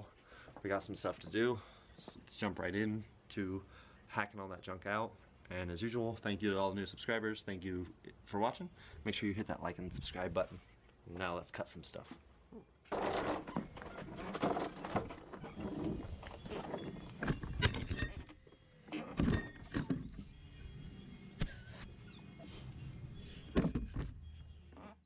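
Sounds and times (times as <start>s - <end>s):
metal tools clanking and rattling: 12.9s - 20.3s.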